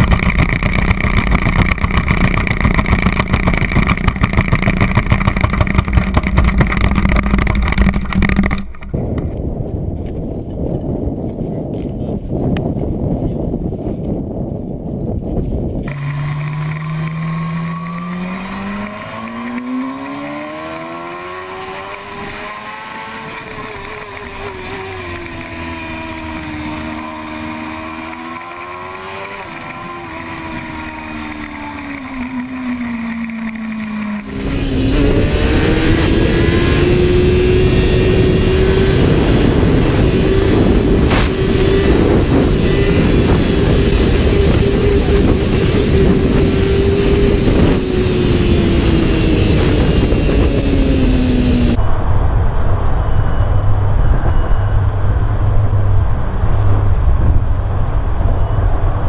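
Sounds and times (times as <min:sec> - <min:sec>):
motorcycle engine high pitch: 0:00.0 - 0:09.4, 0:15.8 - 0:57.1
motorcycle engine accelerating: 0:00.0 - 0:51.8
loud rushing noise: 0:20.5 - 0:59.0.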